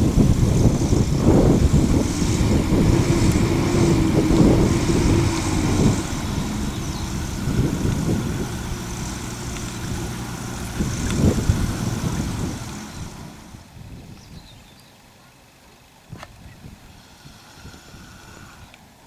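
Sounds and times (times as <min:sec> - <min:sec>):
low rumble: 0:00.0 - 0:13.7
distant engine running: 0:00.0 - 0:13.8.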